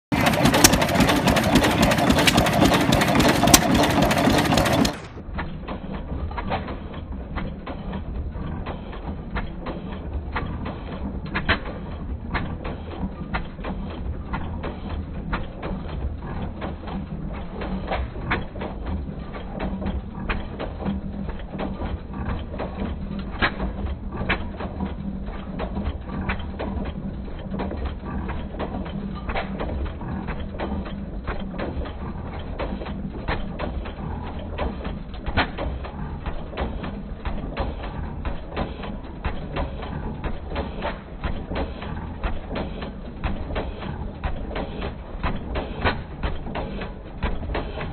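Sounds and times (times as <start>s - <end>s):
stationary engine clattering: 0.0s - 47.9s.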